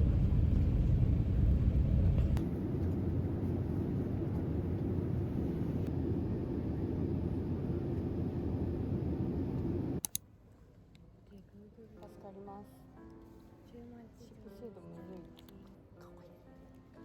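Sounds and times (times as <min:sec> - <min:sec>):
low rumbling noise: 0:00.0 - 0:10.0.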